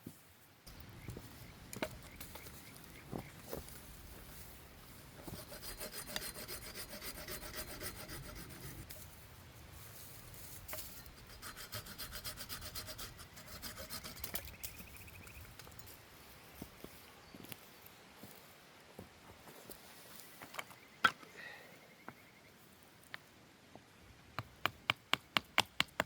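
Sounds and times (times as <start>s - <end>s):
hand saw cutting wood: 5.2s - 8.9s, 11.0s - 14.5s.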